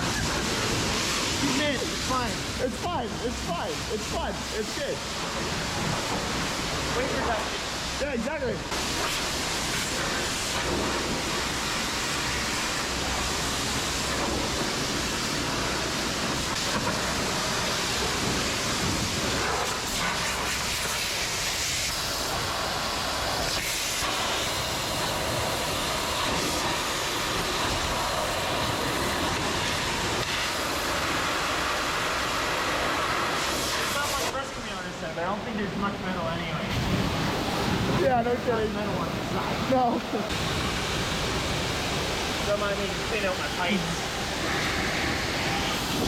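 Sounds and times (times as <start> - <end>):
high-pressure water spray hissing: 0.0 - 46.0.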